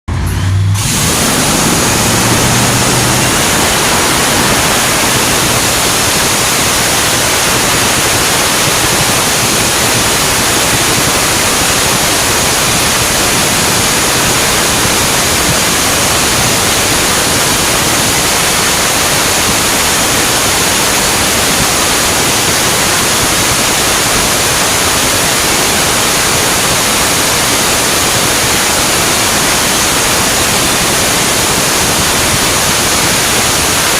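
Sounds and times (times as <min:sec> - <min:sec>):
low hum: 0:00.1 - 0:06.9
dragster engine running: 0:00.1 - 0:28.3.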